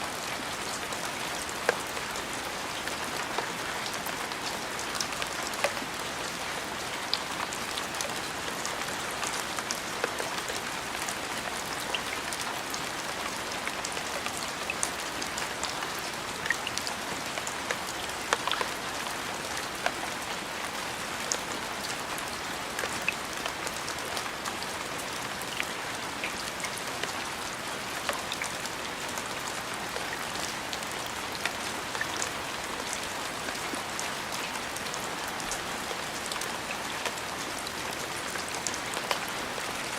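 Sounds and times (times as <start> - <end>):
rain falling: 0.0 - 39.9
raindrops ticking on surface: 0.1 - 39.9.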